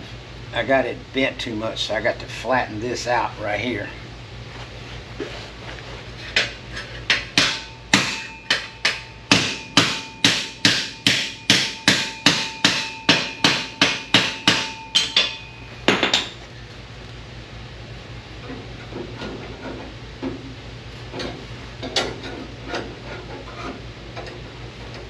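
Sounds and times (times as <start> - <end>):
hammer blows on sheet metal: 7.1 - 16.2.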